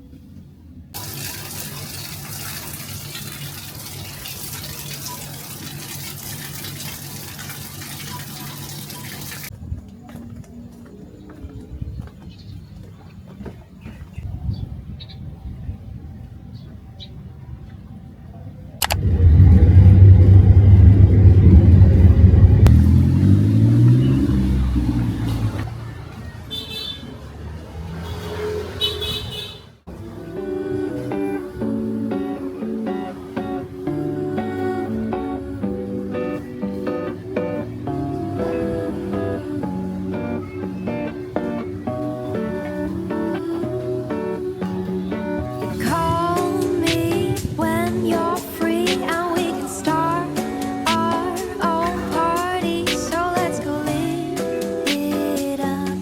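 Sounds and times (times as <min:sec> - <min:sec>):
water running: 0:01.0 - 0:09.5, 0:18.8 - 0:23.6
low hum: 0:18.8 - 0:25.6
vehicle engine passing by: 0:18.8 - 0:26.5, 0:27.2 - 0:29.2.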